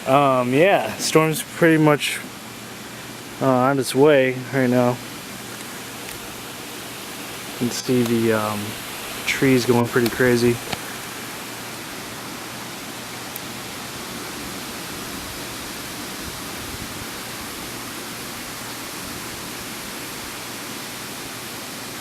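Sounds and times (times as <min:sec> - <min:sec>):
wind blowing through trees: 0:00.0 - 0:22.0.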